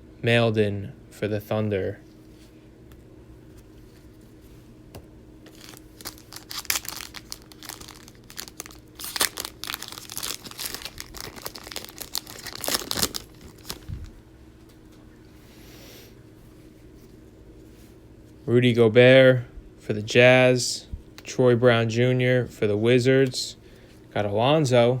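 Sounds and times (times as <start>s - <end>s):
card pack wrapper crinkling: 5.5s - 14.1s.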